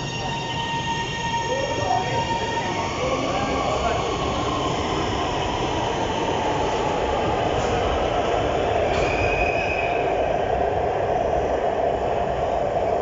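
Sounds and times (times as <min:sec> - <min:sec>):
metro train rumbling on rails: 0:00.0 - 0:13.0.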